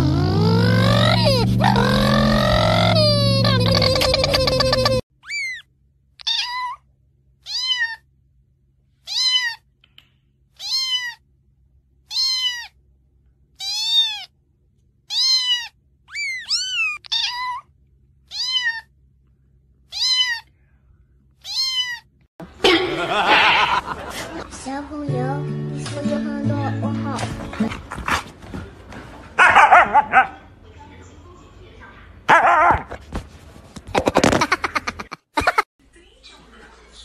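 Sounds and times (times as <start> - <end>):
cat meowing: 6.2 - 6.8, 7.4 - 8.0, 9.0 - 9.6, 10.6 - 11.2, 12.1 - 12.8, 13.6 - 14.3, 15.1 - 17.7, 18.3 - 18.9, 19.9 - 20.5, 21.4 - 22.1.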